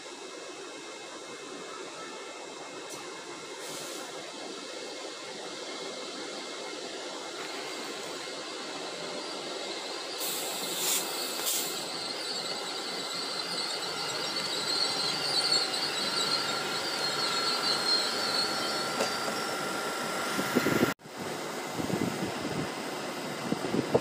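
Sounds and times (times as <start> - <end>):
electric train slowing: 0.0 - 24.0
high-pitched brake squeal: 7.4 - 20.9.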